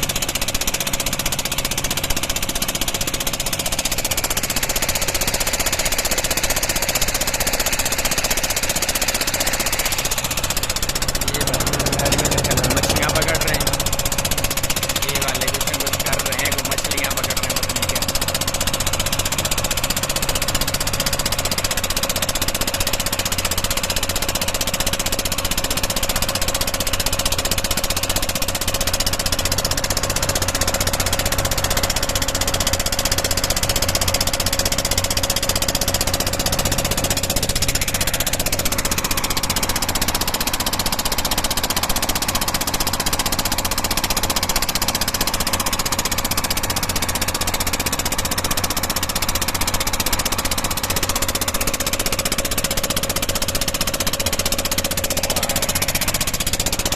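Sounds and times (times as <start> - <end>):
ferry engine running: 7.2 - 21.7, 28.4 - 56.9.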